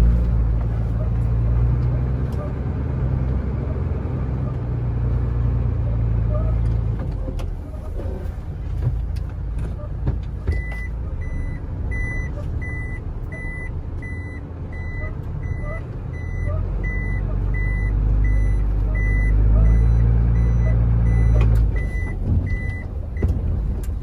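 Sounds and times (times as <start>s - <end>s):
truck engine running: 0.0s - 24.0s
reversing alarm beeping: 10.6s - 23.3s.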